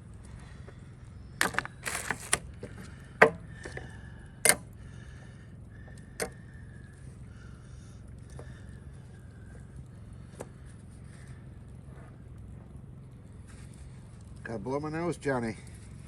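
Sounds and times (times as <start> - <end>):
low steady hum: 0.0 - 16.0
campfire cooking clicks and knocks: 1.4 - 3.8.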